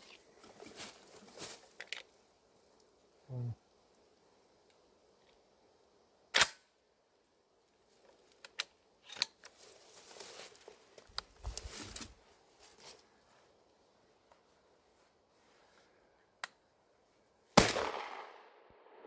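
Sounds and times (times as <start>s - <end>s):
rustling: 0.0s - 2.9s, 9.0s - 13.5s
shotgun shot: 17.6s - 19.0s.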